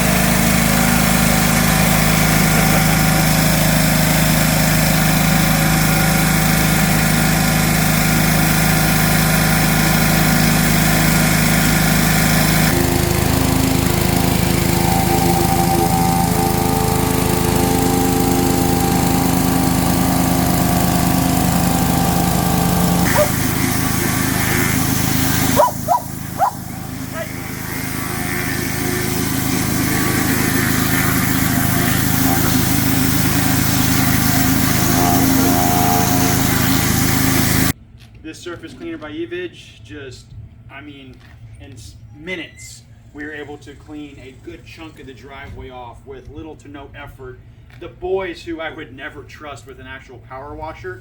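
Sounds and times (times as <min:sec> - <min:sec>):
pressure washer engine running: 0:00.0 - 0:37.8
water spray hissing on concrete: 0:21.6 - 0:37.8.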